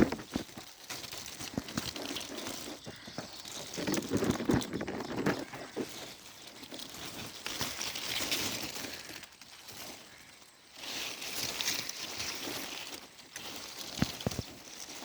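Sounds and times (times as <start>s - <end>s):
dry leaves rustling and crackling: 0.0s - 15.0s.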